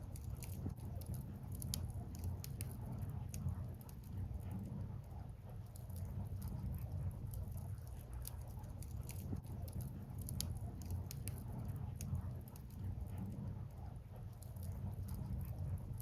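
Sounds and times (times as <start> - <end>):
low rumble: 0.0 - 16.0
bonfire crackling and popping: 5.7 - 12.9.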